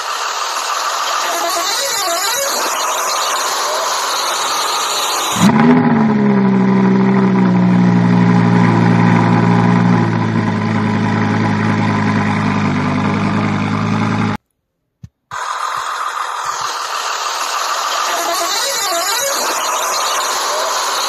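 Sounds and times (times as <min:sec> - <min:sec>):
car engine revving and idling: 0:00.0 - 0:14.4.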